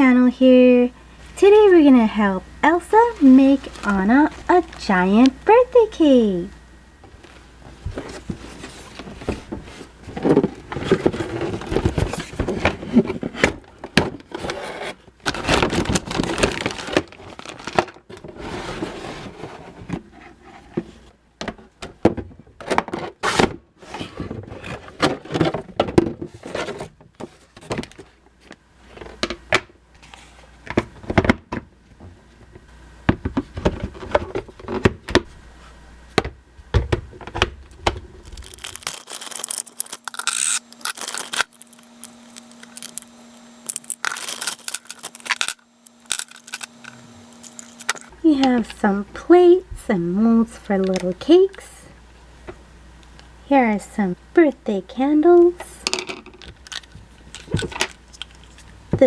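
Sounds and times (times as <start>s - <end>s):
plastic and cardboard handling: 38.2s - 48.1s.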